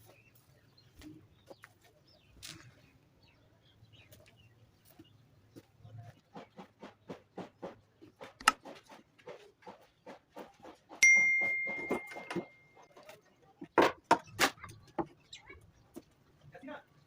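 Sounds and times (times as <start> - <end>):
sharp metallic ding: 11.0 - 12.7.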